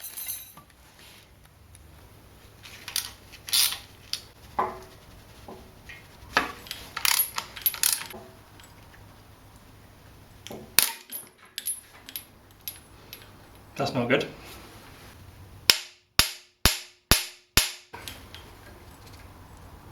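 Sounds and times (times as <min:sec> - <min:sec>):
metal hand tools clinking: 0:00.0 - 0:00.6, 0:07.0 - 0:08.8.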